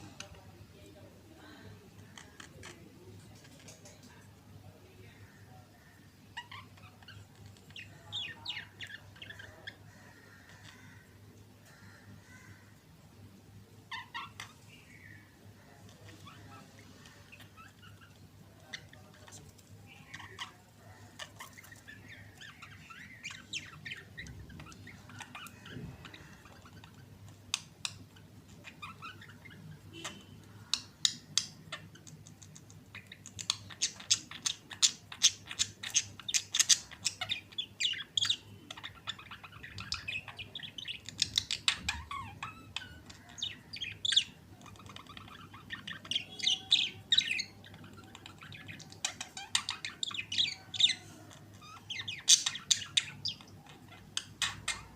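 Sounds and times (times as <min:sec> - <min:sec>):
budgerigars chattering: 0:05.2 - 0:12.6, 0:13.9 - 0:54.9
sharp chirps and squawks: 0:32.9 - 0:54.9.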